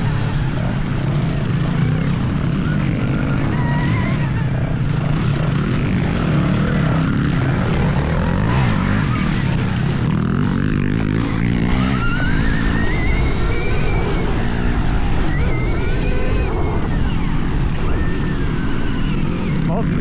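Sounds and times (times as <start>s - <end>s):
wind rush on microphone: 11.3s - 20.0s.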